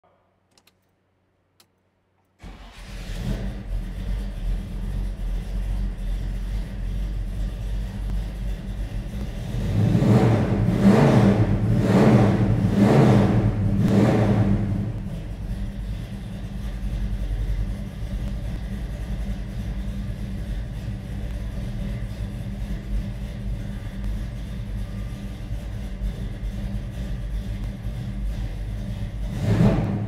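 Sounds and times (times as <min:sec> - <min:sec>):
engine revving: 0:02.4 - 0:24.2, 0:25.5 - 0:30.0
car engine starting and idling: 0:02.4 - 0:30.0
faint clicks: 0:07.9 - 0:09.4, 0:18.0 - 0:18.8.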